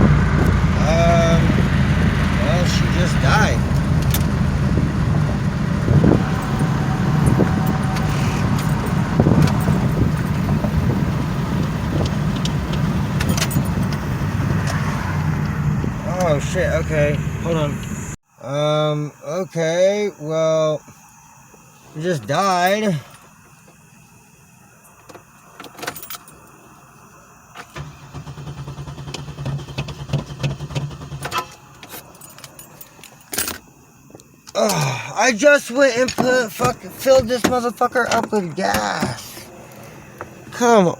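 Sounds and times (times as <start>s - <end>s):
car engine cabin rumble: 0.0s - 18.2s, 24.8s - 34.4s, 35.4s - 40.9s
light clicks and rattles: 8.0s - 14.0s.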